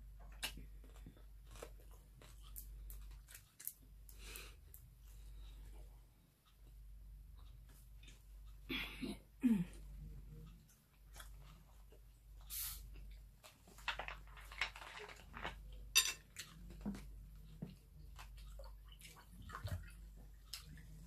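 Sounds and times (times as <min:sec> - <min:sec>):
person chewing: 0:00.1 - 0:05.5, 0:10.4 - 0:13.6, 0:14.8 - 0:21.0.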